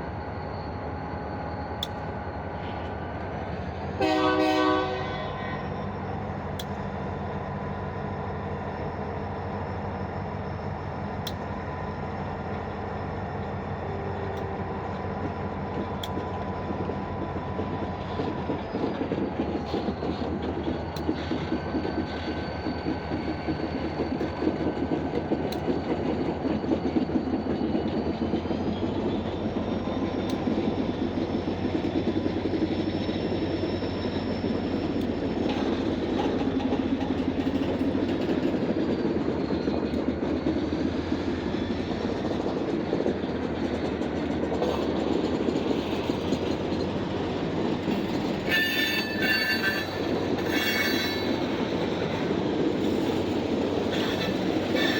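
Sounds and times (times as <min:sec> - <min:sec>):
train wheels clattering over rails: 0:06.4 - 0:54.9
wheels squealing: 0:44.0 - 0:54.9.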